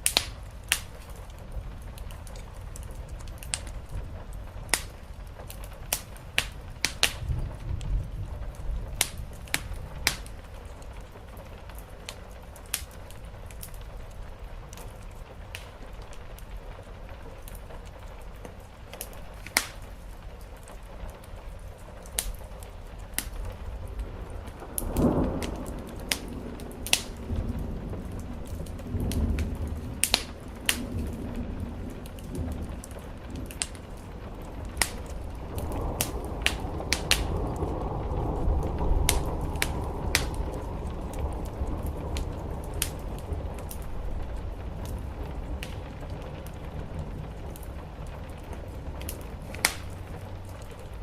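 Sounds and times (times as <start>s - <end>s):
rain on a roof: 0.0s - 51.0s
wood fire crackling and popping: 0.0s - 51.0s
low rumble: 22.6s - 51.0s.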